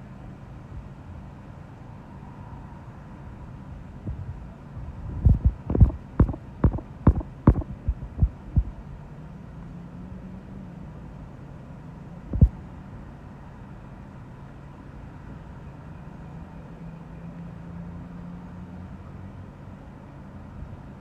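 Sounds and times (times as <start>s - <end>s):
low steady hum: 3.9s - 9.1s, 12.2s - 12.8s
wind buffeting microphone: 4.0s - 8.9s.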